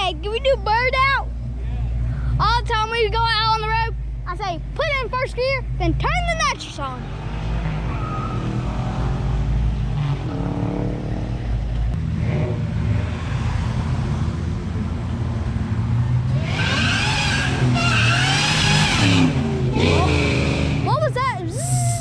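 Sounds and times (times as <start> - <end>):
car engine deep rumble: 0.0 - 22.0.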